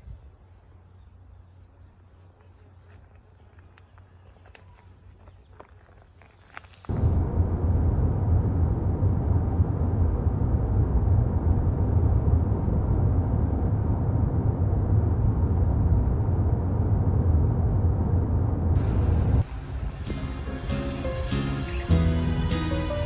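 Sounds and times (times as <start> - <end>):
steady low rumbling: 6.9 - 23.0.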